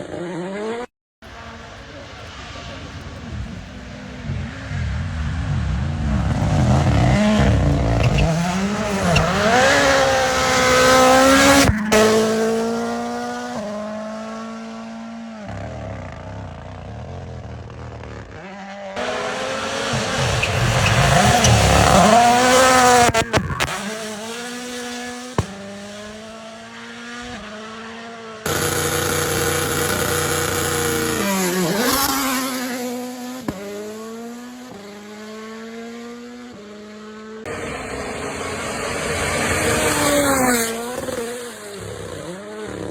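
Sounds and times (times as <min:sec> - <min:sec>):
rally cars revving past: 0:00.0 - 0:16.6, 0:18.2 - 0:42.9
sharp engine pops: 0:25.3 - 0:25.8.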